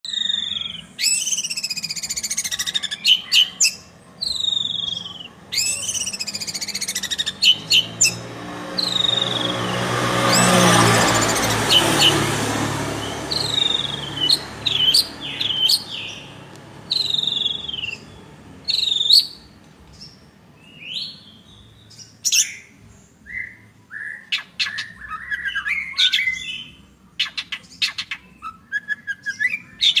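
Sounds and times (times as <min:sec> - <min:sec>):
bird singing whistled phrases: 0:00.0 - 0:08.2, 0:08.8 - 0:09.6, 0:13.3 - 0:16.2, 0:16.9 - 0:19.4, 0:23.3 - 0:30.0.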